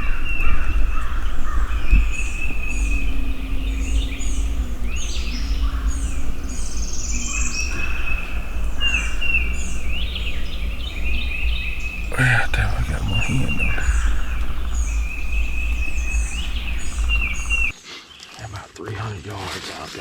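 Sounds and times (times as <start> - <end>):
low rumble: 0.0 - 17.7
songbirds singing: 0.0 - 18.2.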